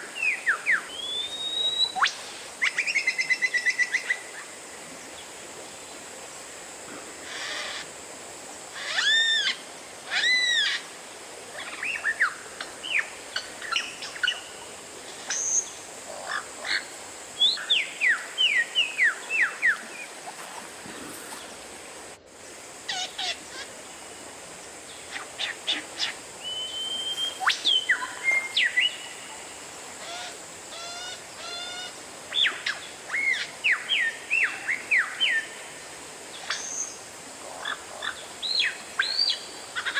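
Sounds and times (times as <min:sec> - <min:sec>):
faint steady hiss: 0:00.0 - 0:39.9
bird singing whistled song: 0:00.2 - 0:03.4, 0:26.4 - 0:29.1.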